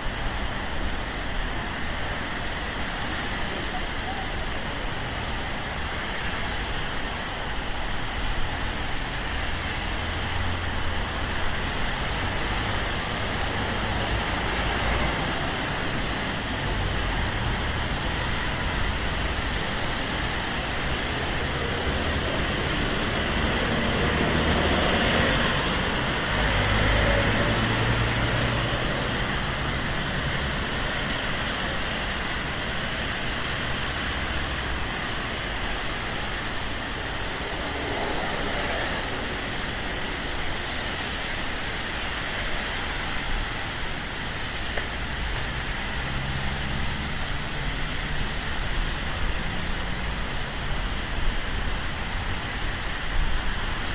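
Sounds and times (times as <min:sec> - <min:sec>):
steady rain: 0:00.0 - 0:53.9
tyres hissing on wet road: 0:00.0 - 0:53.9
vehicle passing: 0:21.1 - 0:30.7.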